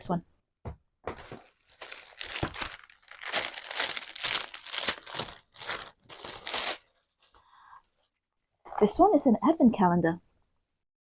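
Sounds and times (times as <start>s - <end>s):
packaging crinkling: 1.1s - 7.3s.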